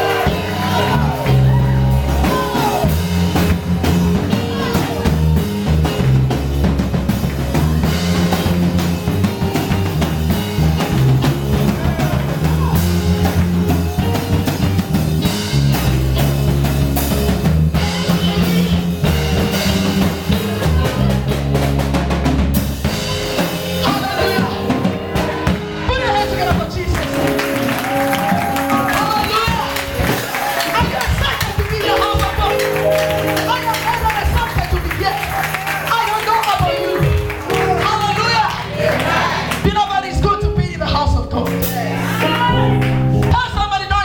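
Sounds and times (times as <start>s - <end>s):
band music: 0.0s - 44.0s
deep bass line: 0.0s - 44.0s
drum kit beat: 0.0s - 44.0s.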